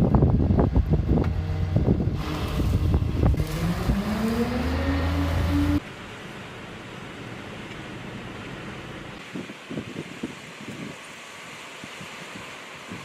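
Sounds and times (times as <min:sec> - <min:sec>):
wind buffeting: 0:00.0 - 0:05.8.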